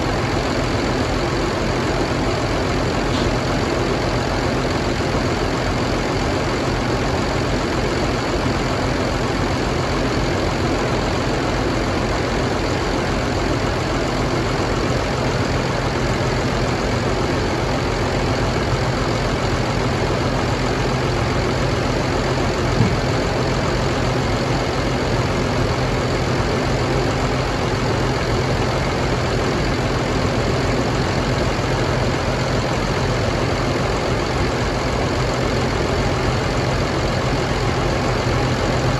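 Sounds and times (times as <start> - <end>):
diesel engine idling: 0.0 - 38.9
brief knock: 22.8 - 23.2.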